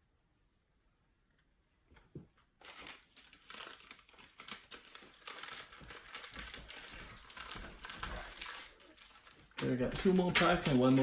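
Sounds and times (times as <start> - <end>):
foil wrapper crinkling: 2.6 - 11.0.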